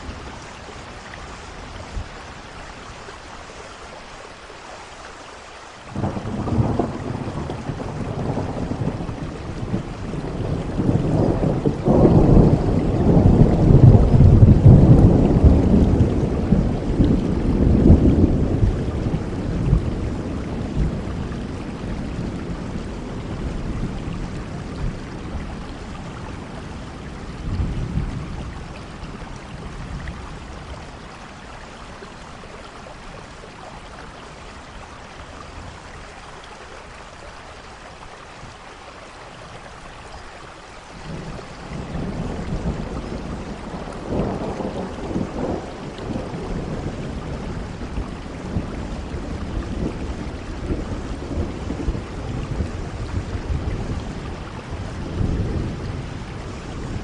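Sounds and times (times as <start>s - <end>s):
steady rain: 0.0s - 57.0s
deep roll of thunder: 5.9s - 31.0s, 41.0s - 57.0s.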